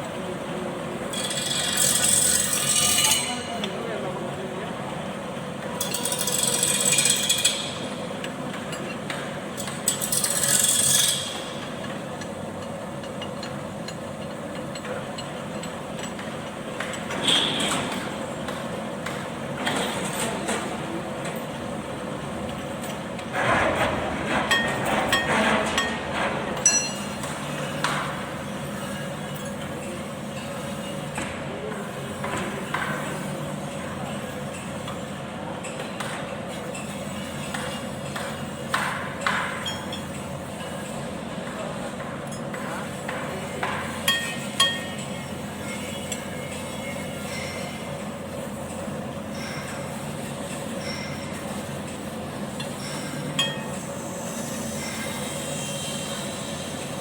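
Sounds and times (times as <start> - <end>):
hand tools clinking on metal: 26.6 - 28.0.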